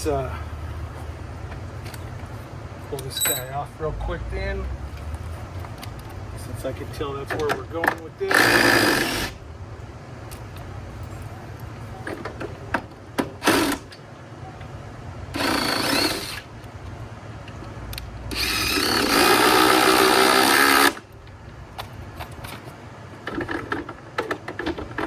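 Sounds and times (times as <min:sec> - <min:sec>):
power drill running: 0:08.3 - 0:09.4, 0:15.4 - 0:16.5, 0:18.3 - 0:21.0.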